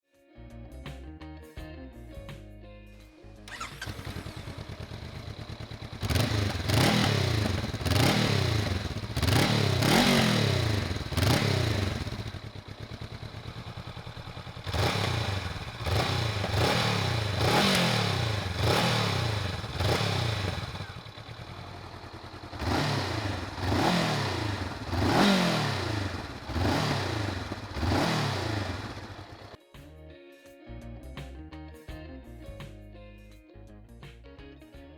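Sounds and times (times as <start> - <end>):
motorcycle engine revving: 3.5 - 29.6.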